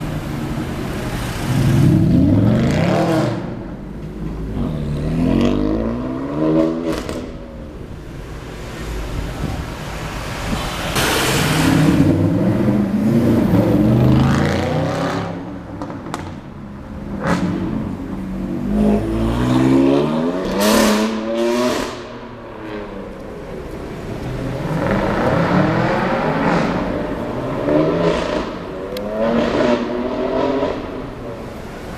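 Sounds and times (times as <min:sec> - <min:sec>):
car engines revving hard: 0:00.0 - 0:16.4, 0:17.0 - 0:31.9.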